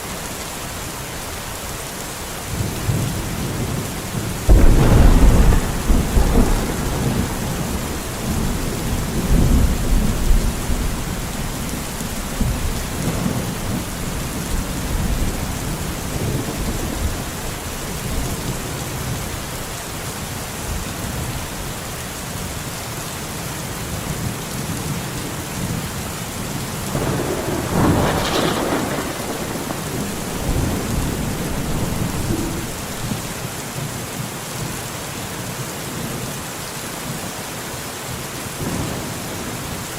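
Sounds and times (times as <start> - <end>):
steady rain falling: 0.0 - 39.9
thunder rumbling: 2.5 - 19.4, 26.9 - 33.5.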